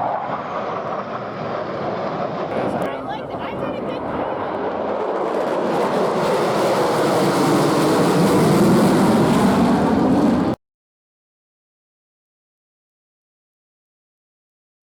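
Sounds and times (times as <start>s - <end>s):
jet aircraft roaring past: 0.0s - 10.6s.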